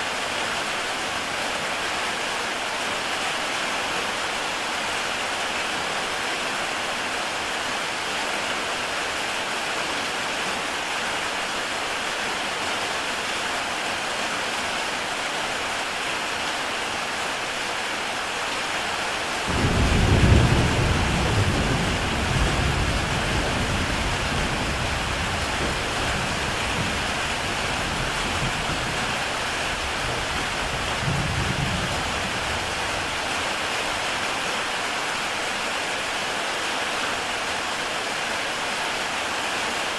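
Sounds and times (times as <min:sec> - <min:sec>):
heavy rain on a tile roof: 0:00.0 - 0:39.9
thunder rumble: 0:19.5 - 0:33.2.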